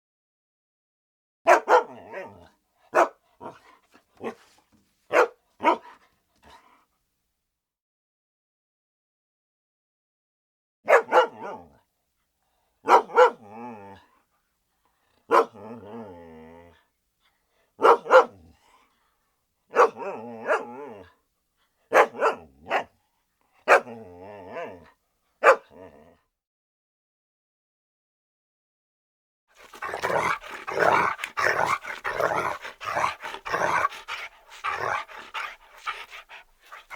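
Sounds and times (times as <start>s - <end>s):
dog barking and growling: 1.5s - 6.8s, 10.9s - 11.8s, 12.8s - 14.2s, 15.1s - 16.9s, 17.8s - 18.9s, 19.7s - 21.2s, 21.9s - 23.0s, 23.6s - 26.2s, 29.6s - 36.9s.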